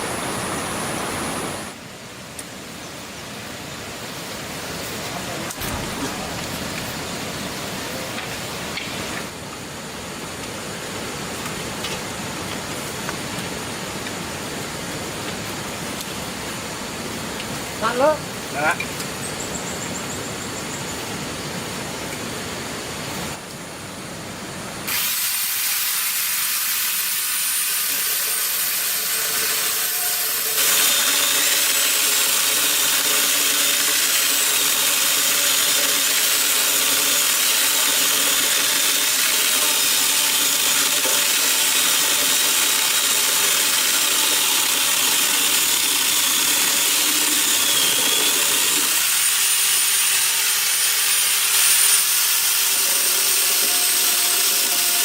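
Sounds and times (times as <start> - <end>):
power tool whining on wood: 24.9 - 55.0.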